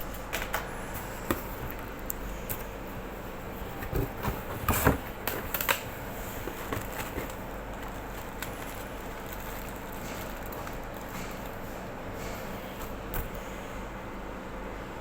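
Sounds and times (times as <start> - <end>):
low background hum: 0.0 - 15.0
packaging clicks and knocks: 6.5 - 11.6.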